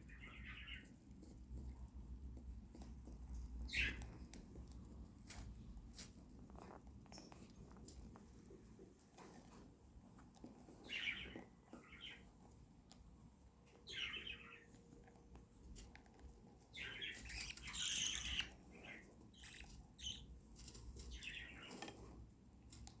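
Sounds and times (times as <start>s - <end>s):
budgerigars chirping: 0.1s - 0.9s, 3.7s - 4.0s, 13.9s - 14.7s, 16.8s - 20.3s, 21.1s - 21.8s.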